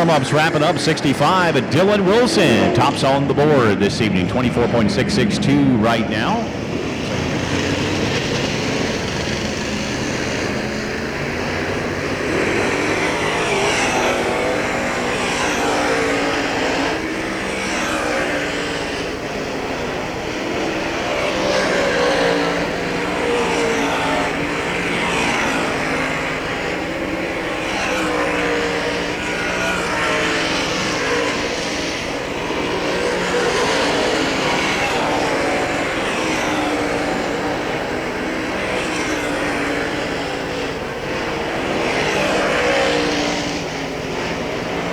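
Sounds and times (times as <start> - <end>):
race car engines passing: 0.0 - 44.9.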